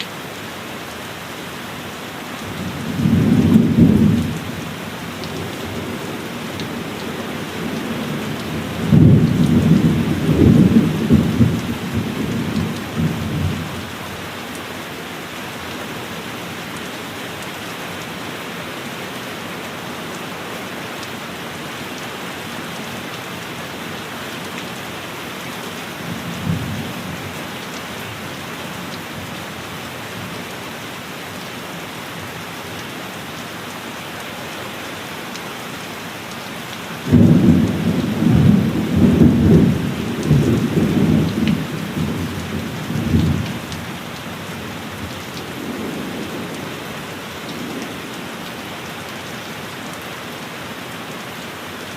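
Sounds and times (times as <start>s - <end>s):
heavy rain: 0.0s - 51.9s
thunder rolling and crackling: 7.7s - 13.8s, 37.1s - 43.8s.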